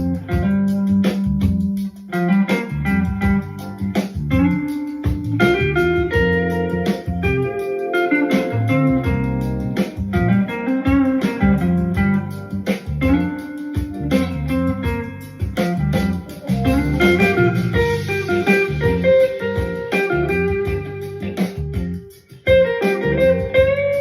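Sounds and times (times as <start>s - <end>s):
funky instrumental groove: 0.0s - 24.0s.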